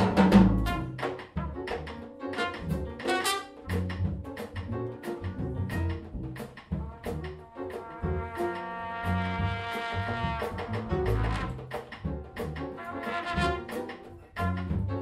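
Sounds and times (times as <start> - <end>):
drums: 0.0 - 15.0
walking double bass: 0.0 - 15.0
trumpet solo: 0.5 - 3.8, 6.8 - 11.8, 12.4 - 14.9.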